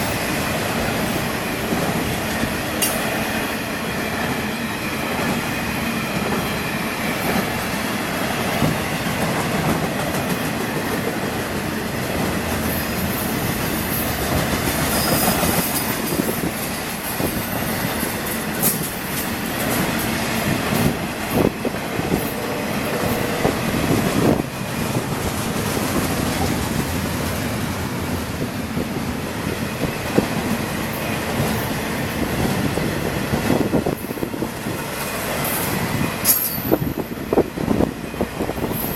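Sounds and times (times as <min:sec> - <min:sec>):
freight train wheels rumbling: 0:00.0 - 0:38.9
wheel squeal: 0:14.8 - 0:16.0.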